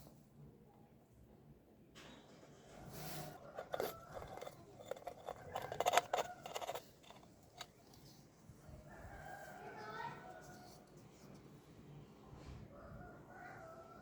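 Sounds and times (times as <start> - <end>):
hand tools clicking and snipping: 3.6 - 7.8.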